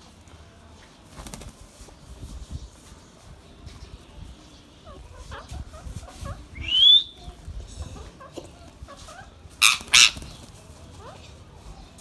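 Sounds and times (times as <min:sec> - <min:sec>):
harsh parakeet screeches: 0:09.6 - 0:10.4
loud rising parakeet call: 0:09.6 - 0:10.4
parakeets chirping: 0:09.6 - 0:11.2.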